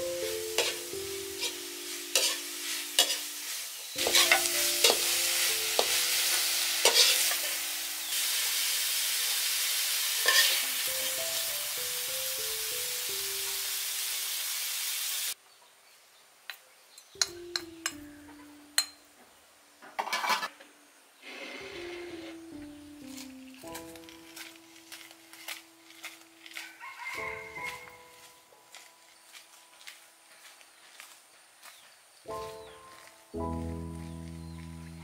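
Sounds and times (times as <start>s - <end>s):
food sizzling in a wok: 0.0s - 15.4s, 21.2s - 28.3s
ladle stirring and scraping: 1.4s - 5.0s, 6.8s - 7.5s, 10.2s - 10.6s, 23.2s - 27.7s.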